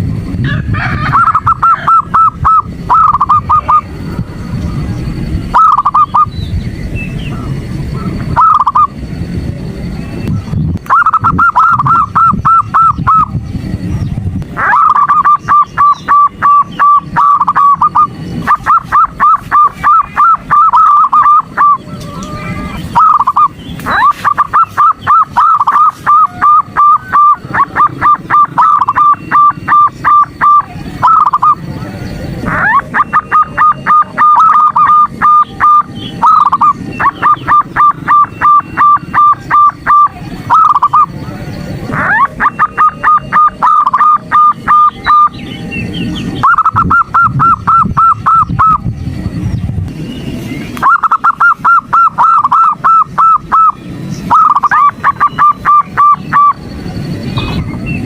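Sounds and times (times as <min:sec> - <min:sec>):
dove calling in rapid staccato notes: 0:00.0 - 0:04.0, 0:05.1 - 0:09.0, 0:10.3 - 0:49.0, 0:50.6 - 0:58.0
low rumble: 0:00.0 - 0:58.0.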